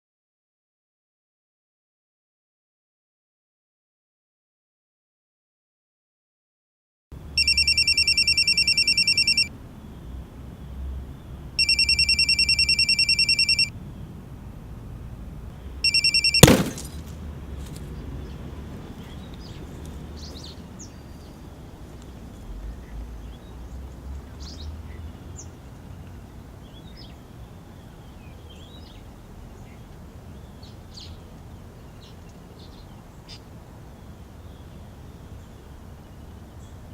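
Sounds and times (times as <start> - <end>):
telephone ringing: 7.4 - 9.5, 11.6 - 13.7, 15.8 - 16.5.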